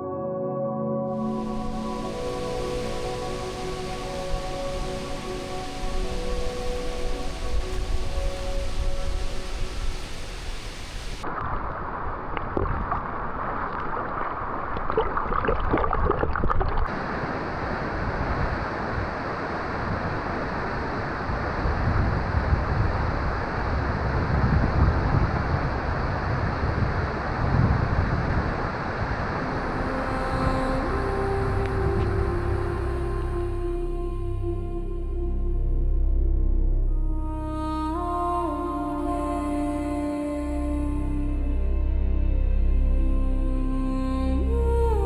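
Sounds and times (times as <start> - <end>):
waterfall rushing: 1.2 - 16.0, 16.7 - 24.1, 28.5 - 33.5.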